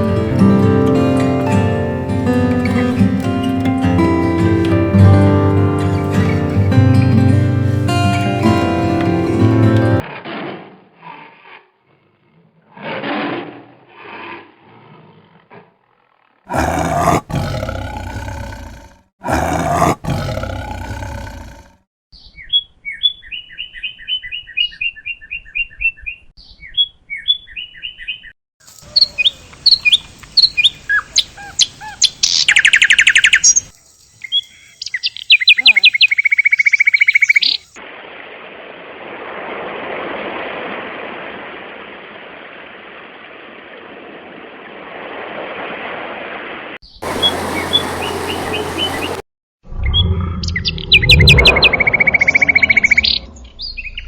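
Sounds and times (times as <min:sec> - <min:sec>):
birds chirping and trilling: 0:05.9 - 0:07.8, 0:16.5 - 0:37.8, 0:46.8 - 0:54.0
large animal roaring: 0:16.5 - 0:21.8, 0:47.0 - 0:54.0.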